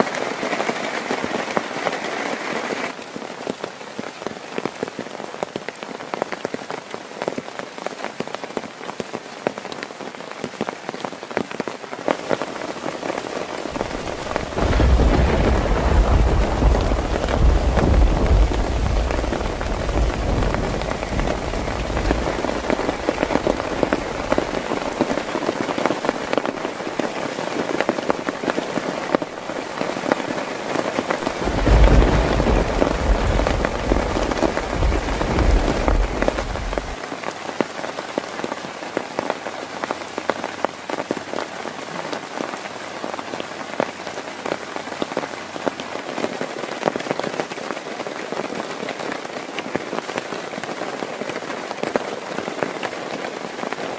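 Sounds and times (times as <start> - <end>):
heavy rain falling: 0.0 - 53.9
deep rumble: 13.8 - 24.6, 31.2 - 37.0.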